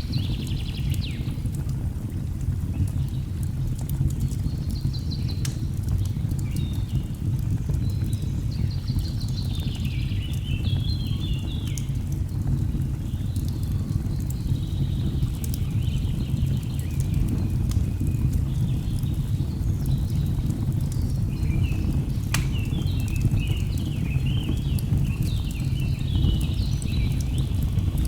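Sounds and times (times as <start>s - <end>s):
fire crackling and popping: 0.0s - 28.0s
birds singing: 7.8s - 28.0s.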